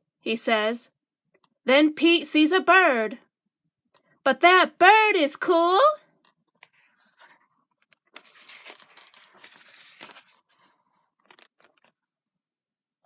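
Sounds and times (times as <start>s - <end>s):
rustling and crinkling handling noise: 6.6s - 12.1s.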